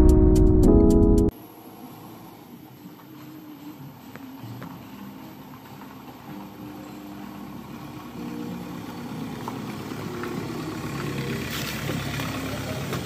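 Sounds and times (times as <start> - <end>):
diesel car engine approaching: 7.4 - 13.0.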